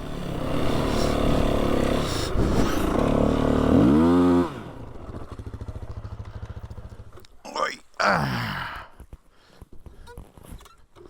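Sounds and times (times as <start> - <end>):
off-road vehicle engine: 0.0 - 7.4.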